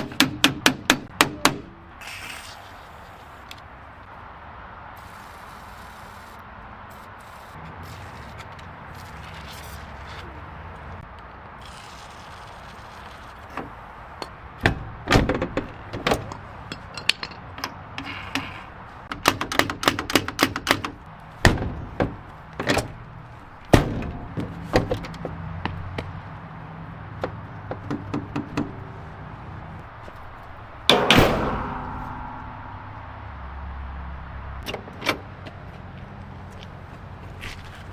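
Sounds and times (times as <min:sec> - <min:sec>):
ringing metal clank: 0:30.9 - 0:33.6.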